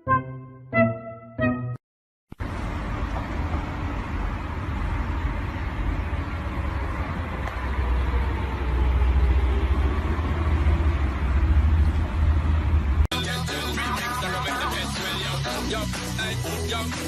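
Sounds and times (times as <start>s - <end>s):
music with a beat: 13.1s - 17.0s.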